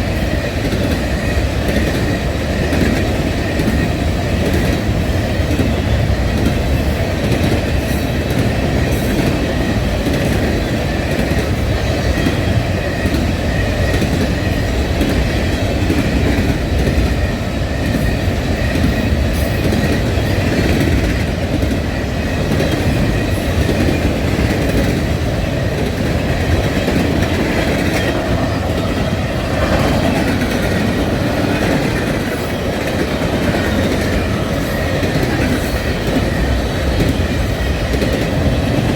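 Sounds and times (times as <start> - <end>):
freight train rumbling past: 0.0 - 38.9
wheels clacking over rail joints: 18.8 - 38.9.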